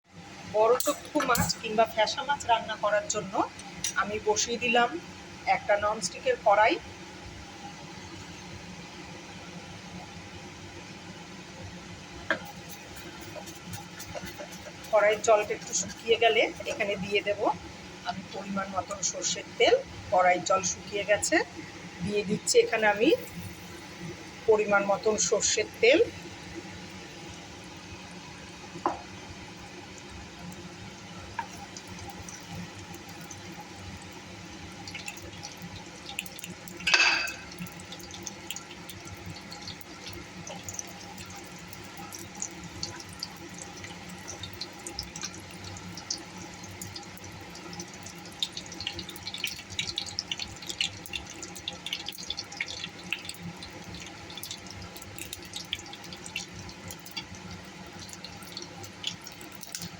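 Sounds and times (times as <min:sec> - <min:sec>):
oil crackling and popping: 0:12.2 - 0:17.4, 0:28.8 - 0:59.9.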